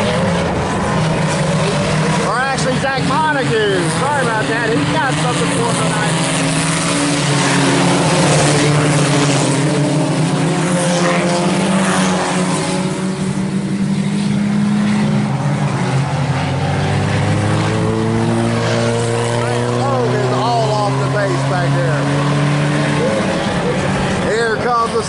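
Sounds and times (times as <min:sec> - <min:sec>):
race car engines revving: 0:00.0 - 0:25.0.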